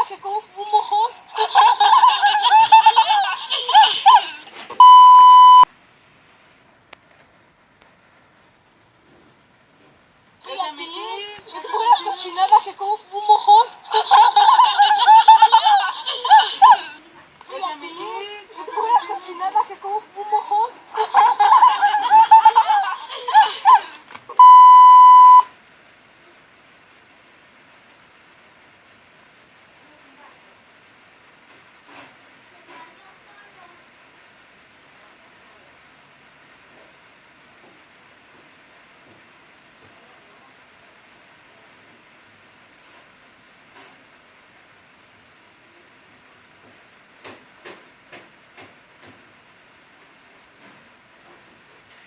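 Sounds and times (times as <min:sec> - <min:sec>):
high-pitched giggly child's voice: 0:00.0 - 0:04.8, 0:10.4 - 0:24.2
faint hiss: 0:00.0 - 0:52.0
electronic beep: 0:04.8 - 0:05.7, 0:24.4 - 0:25.4.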